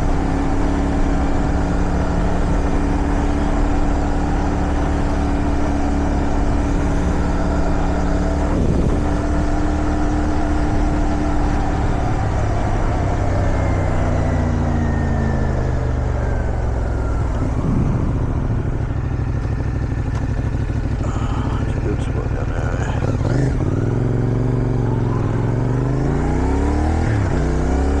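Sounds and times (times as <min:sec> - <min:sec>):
motorcycle engine running: 0:00.0 - 0:28.0
wind noise: 0:06.4 - 0:12.7, 0:17.2 - 0:18.8.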